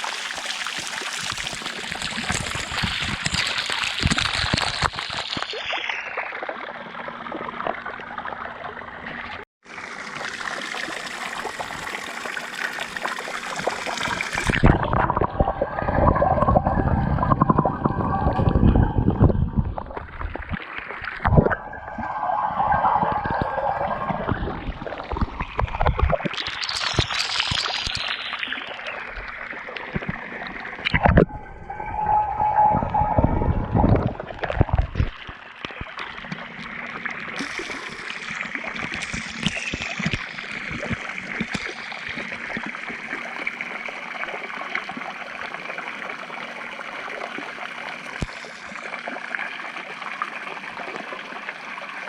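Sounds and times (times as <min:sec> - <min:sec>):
fountain water splashing: 0:00.0 - 0:05.2.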